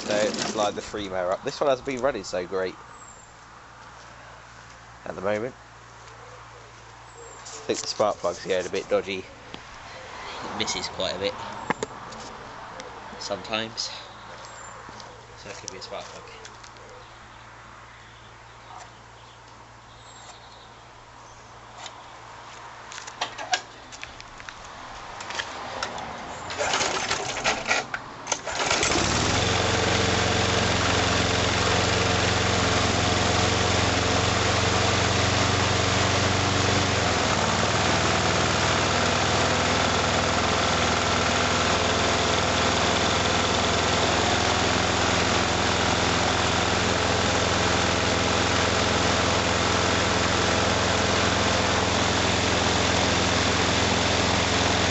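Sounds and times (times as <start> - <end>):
pull-start clicks and rattles: 0.0 - 1.0, 26.5 - 54.9
lawn mower engine running: 0.0 - 2.4, 26.4 - 54.9.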